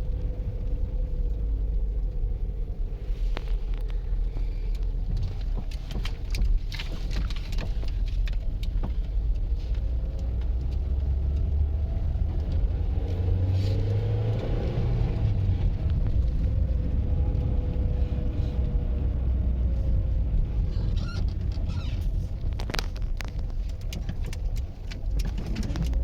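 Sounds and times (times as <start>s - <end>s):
crackling clicks and crunches: 0.1s - 14.6s, 20.4s - 26.0s.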